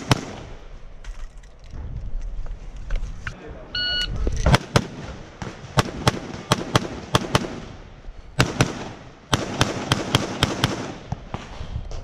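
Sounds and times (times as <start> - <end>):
rapid gunshots: 0.0 - 0.5, 4.5 - 7.8, 8.4 - 11.5.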